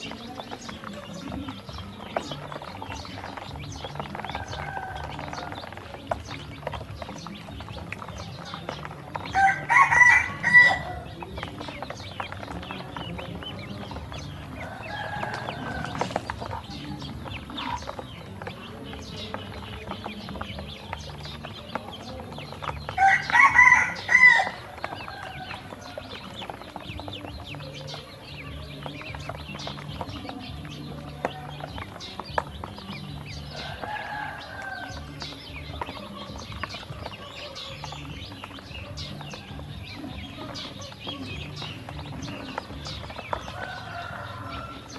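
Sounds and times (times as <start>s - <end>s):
ducklings feeding clicks: 0.0s - 44.9s
rooster crowing: 4.1s - 5.9s, 9.3s - 11.1s, 14.5s - 16.4s, 22.9s - 26.7s, 33.5s - 38.0s, 42.3s - 44.9s.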